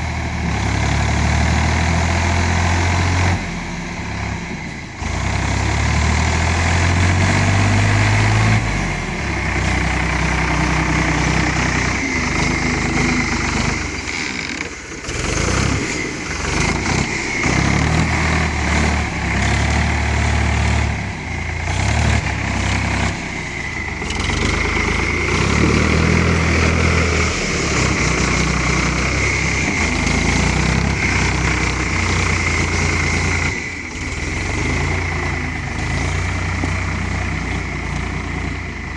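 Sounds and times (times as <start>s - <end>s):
tractor engine under load: 0.0s - 38.9s
steady high whine: 20.0s - 38.9s.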